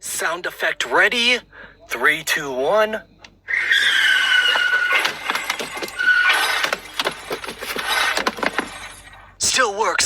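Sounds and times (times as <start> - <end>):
tyre screech: 3.5 - 9.2
debris clatter: 4.4 - 9.3.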